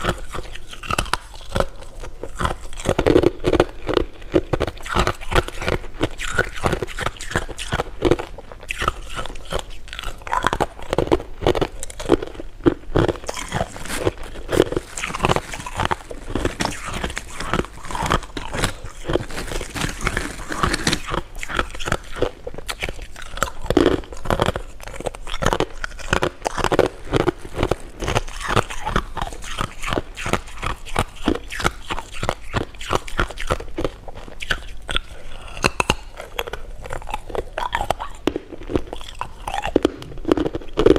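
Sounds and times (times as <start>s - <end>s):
chewing and crunching candy: 0.0s - 40.9s.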